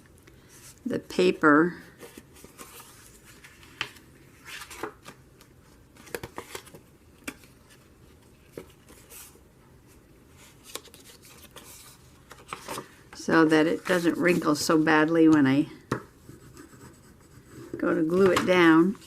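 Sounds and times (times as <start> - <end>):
paper being folded and creased: 2.0 - 5.2, 10.4 - 14.9.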